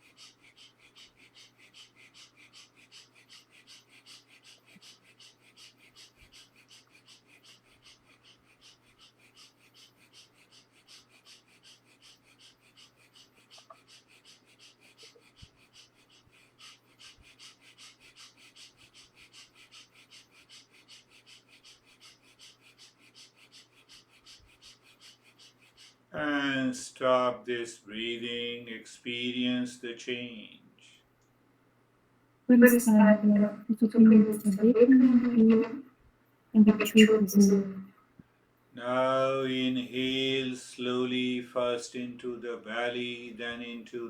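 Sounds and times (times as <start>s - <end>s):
rapid breaths through nose: 0.0s - 26.2s.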